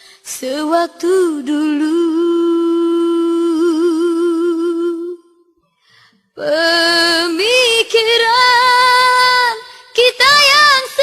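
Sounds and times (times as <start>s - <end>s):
woman singing a cappella: 0.0s - 5.6s, 6.3s - 11.0s
singer breath: 5.7s - 6.3s.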